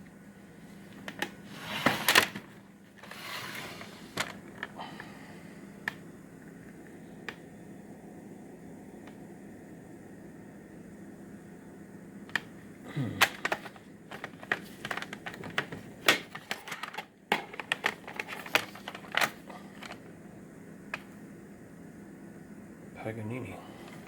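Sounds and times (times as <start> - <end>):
plastic cassette cases clicking: 13.2 - 20.0.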